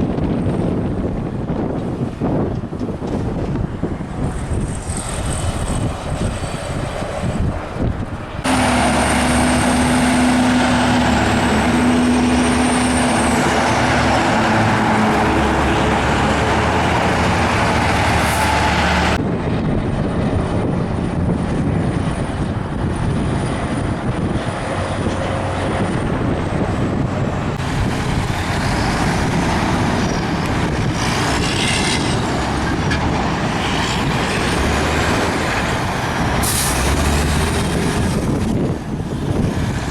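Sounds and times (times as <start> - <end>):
diesel truck engines: 0.0 - 39.9
tyres on pavement: 1.4 - 19.2.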